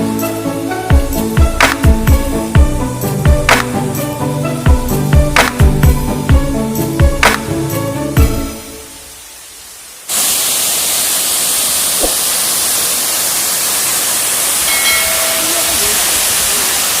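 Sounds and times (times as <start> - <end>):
music: 0.0 - 9.2
waterfall rushing: 0.0 - 17.0.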